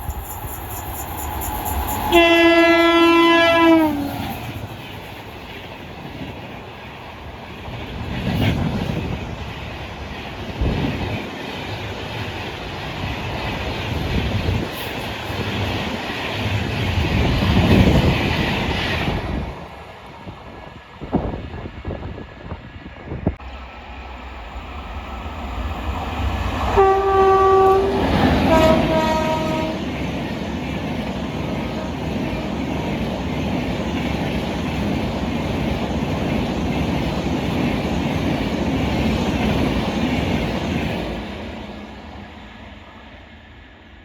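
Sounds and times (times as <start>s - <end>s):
train rumble and wheel clatter: 0.0s - 44.0s
train horn blasts: 2.0s - 4.2s, 26.7s - 29.9s.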